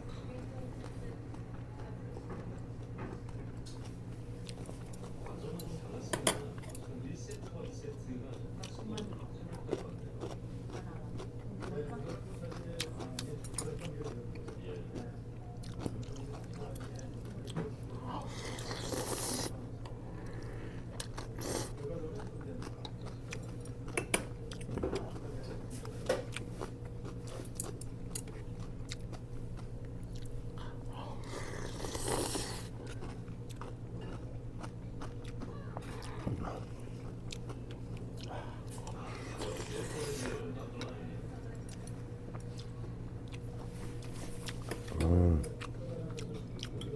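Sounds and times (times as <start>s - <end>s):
person chewing and biting: 9.7s - 10.8s, 15.6s - 17.6s, 18.3s - 19.6s, 20.4s - 23.5s, 26.3s - 30.4s, 31.2s - 40.4s.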